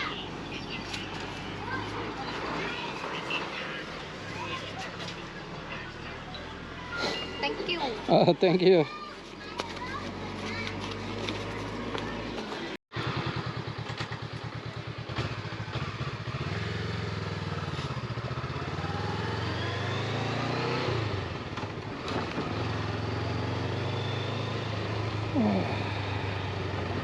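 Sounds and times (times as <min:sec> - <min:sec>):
motorcycle engine accelerating: 0:10.1 - 0:27.0.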